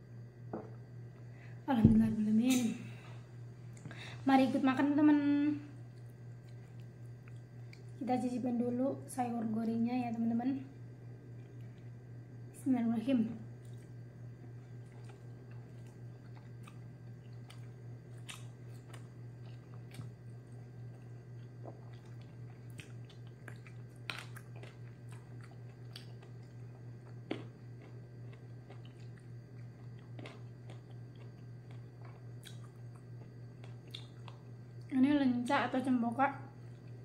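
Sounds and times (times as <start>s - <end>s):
low hum: 0.0s - 37.0s
person chewing: 5.8s - 8.0s, 14.6s - 34.6s.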